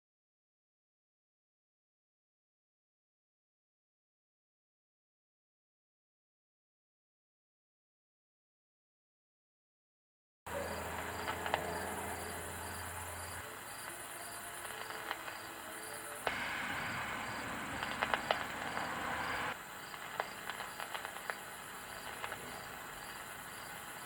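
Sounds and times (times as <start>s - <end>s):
crickets chirping: 10.5s - 24.0s
faint clicks: 10.6s - 16.4s, 17.3s - 21.4s, 22.0s - 22.5s.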